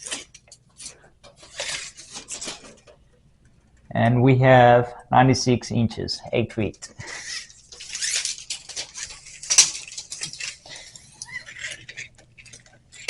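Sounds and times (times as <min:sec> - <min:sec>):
scraping and rustling: 0:00.0 - 0:03.8, 0:06.8 - 0:13.0.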